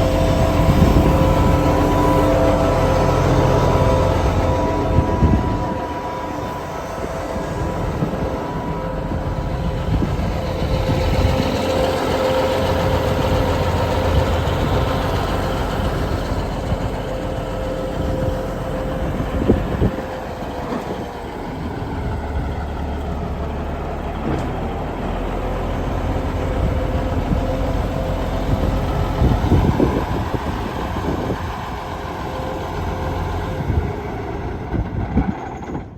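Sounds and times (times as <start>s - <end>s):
thin steady whine: 0.0s - 24.0s
tractor diesel engine running: 0.0s - 35.9s.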